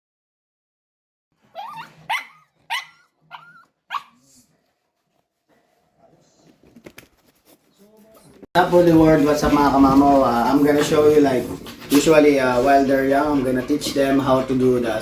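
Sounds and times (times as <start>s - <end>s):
dog barking: 1.6s - 4.2s.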